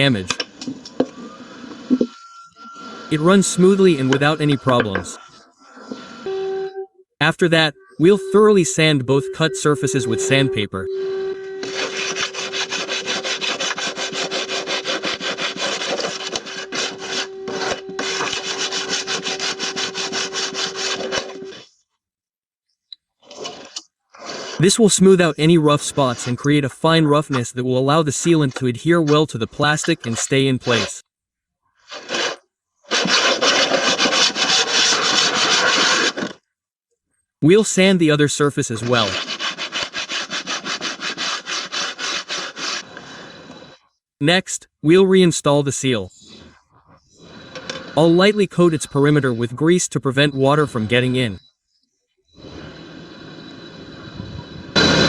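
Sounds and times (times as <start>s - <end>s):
sandpaper rubbing on plastic: 11.6s - 21.7s, 23.2s - 26.7s, 29.6s - 31.0s, 31.8s - 36.4s, 38.6s - 43.5s.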